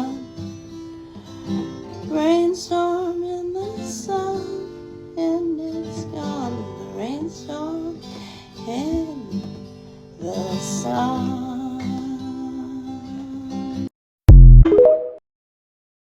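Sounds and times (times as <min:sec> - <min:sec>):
acoustic guitar playing: 0:00.0 - 0:07.2.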